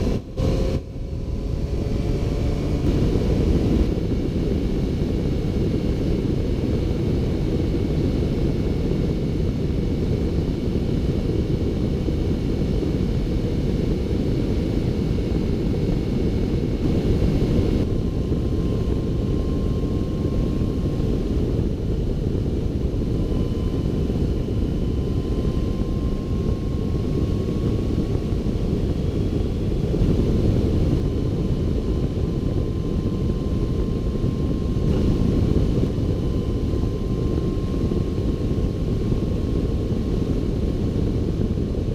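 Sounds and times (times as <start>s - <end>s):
motorcycle wind and engine noise: 0.0s - 41.9s
faint thin whine: 2.4s - 41.9s.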